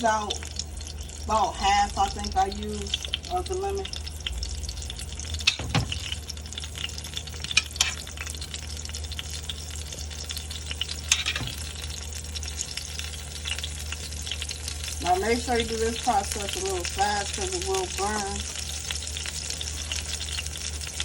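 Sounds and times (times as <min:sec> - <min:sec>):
tortilla sizzling in oil: 0:00.0 - 0:21.0.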